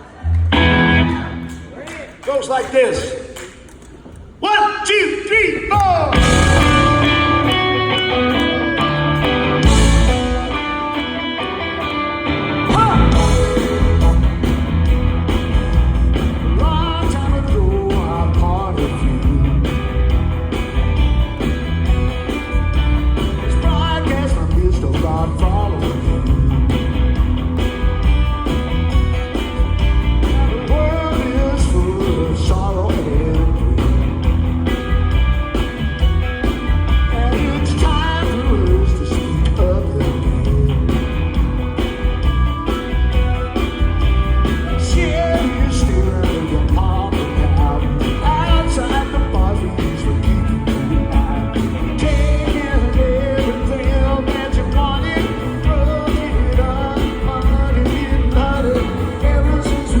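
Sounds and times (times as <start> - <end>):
live rock band playing: 0.4 - 1.7, 6.1 - 60.0
person singing: 12.6 - 14.7, 16.5 - 19.9, 23.4 - 26.8, 30.2 - 34.0, 37.0 - 41.1, 44.6 - 60.0.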